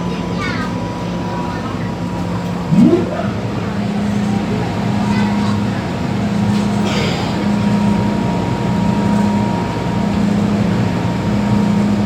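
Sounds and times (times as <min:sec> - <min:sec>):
metro train low hum: 0:00.0 - 0:12.0
train running noise: 0:00.0 - 0:12.0
thin constant whine: 0:02.0 - 0:06.5.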